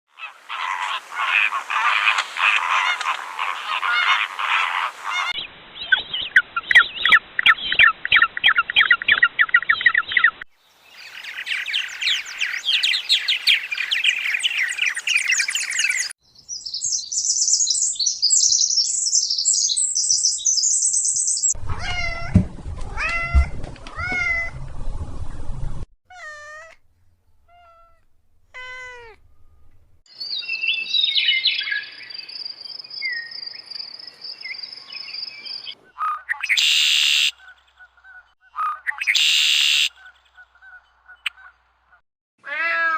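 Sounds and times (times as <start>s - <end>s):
animal calls: 0.1s - 6.0s, 27.4s - 29.7s
small birds chirping: 0.2s - 21.6s, 26.1s - 42.0s
cat meowing: 21.7s - 24.6s, 26.1s - 26.8s, 27.5s - 29.2s, 42.4s - 42.9s.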